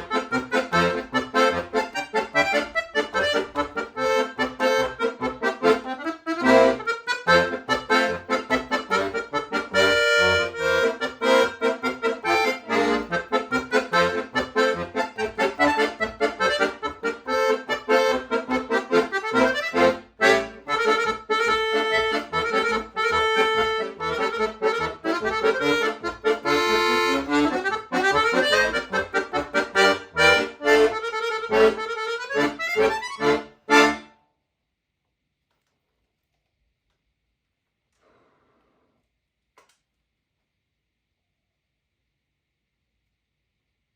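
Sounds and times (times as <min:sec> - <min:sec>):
accordion playing fast notes: 0:00.0 - 0:34.2.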